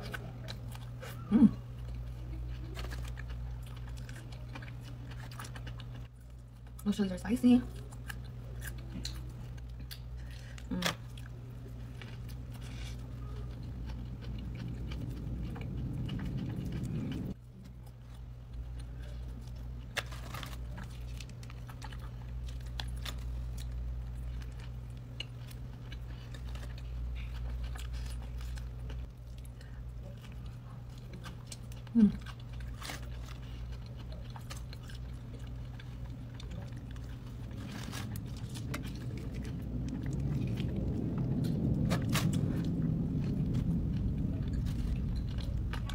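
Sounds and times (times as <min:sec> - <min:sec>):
chewing and biting food: 0:00.0 - 0:06.9, 0:07.6 - 0:45.9
low electrical hum: 0:00.0 - 0:45.9
low rushing noise: 0:37.4 - 0:45.9.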